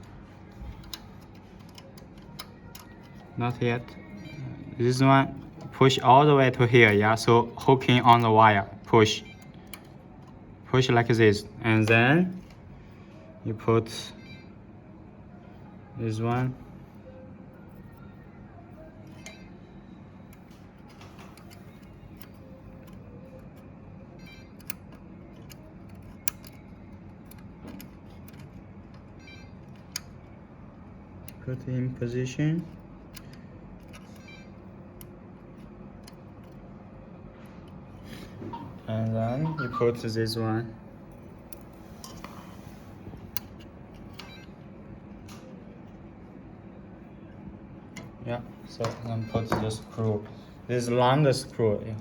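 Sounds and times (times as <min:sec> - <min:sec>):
small plastic parts clicking: 0:00.0 - 0:04.0, 0:08.9 - 0:10.4, 0:20.3 - 0:30.4, 0:32.6 - 0:36.7, 0:43.1 - 0:44.5
low background noise: 0:00.0 - 0:52.0.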